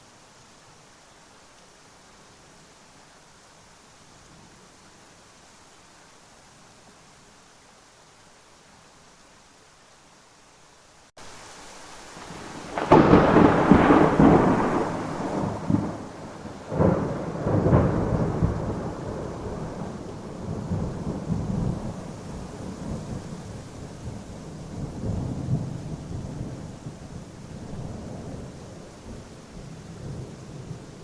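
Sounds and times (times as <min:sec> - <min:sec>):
steady rain: 0:00.0 - 0:31.0
thunderclaps and rumbling: 0:12.3 - 0:23.3.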